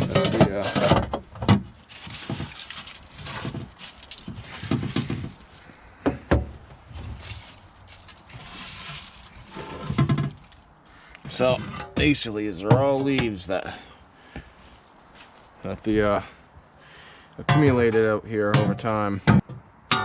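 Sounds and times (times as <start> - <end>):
dry leaves rustling and crunching: 1.6 - 5.6, 6.8 - 10.7.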